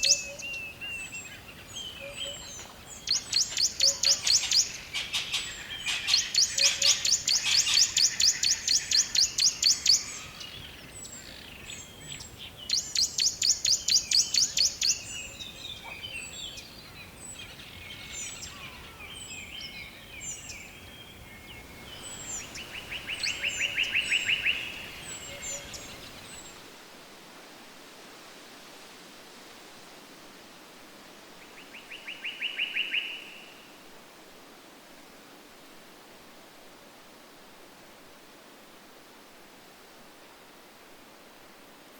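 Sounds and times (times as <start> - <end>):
songbird trills: 0.0 - 26.6, 31.6 - 33.6
soft background hiss: 0.0 - 41.9.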